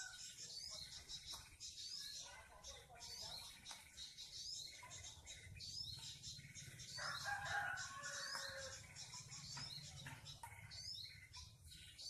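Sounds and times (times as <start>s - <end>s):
small birds chirping: 0.0s - 12.0s
rooster crowing: 7.0s - 8.8s.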